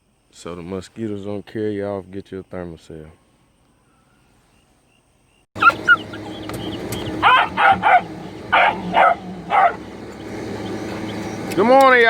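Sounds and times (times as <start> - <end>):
dogs barking: 5.6 - 11.5
steady background hum: 5.6 - 12.0.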